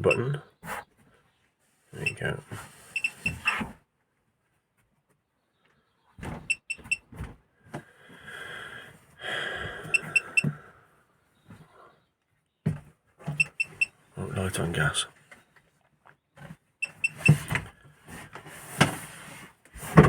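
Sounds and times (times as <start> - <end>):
short high beeps: 3.0 - 3.4, 6.5 - 7.0, 9.9 - 10.5.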